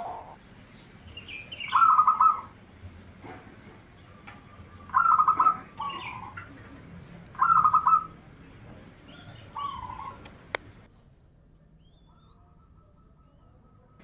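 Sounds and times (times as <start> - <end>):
dove cooing: 0.0 - 0.4, 1.4 - 2.6, 3.9 - 10.9.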